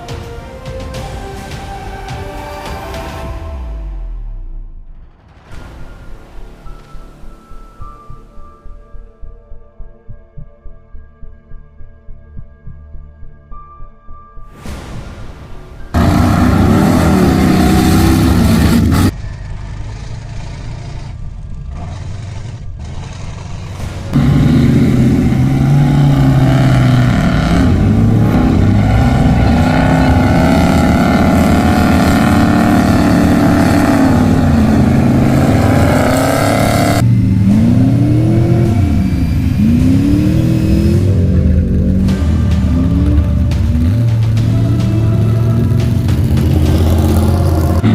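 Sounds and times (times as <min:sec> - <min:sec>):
truck engine revving hard: 0:15.9 - 0:47.9.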